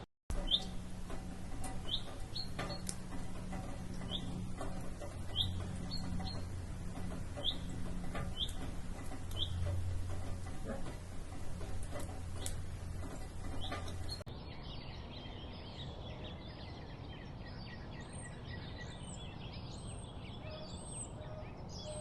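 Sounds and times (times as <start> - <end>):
low hum: 0.0 - 14.3
birds chirping rapidly: 0.3 - 22.0.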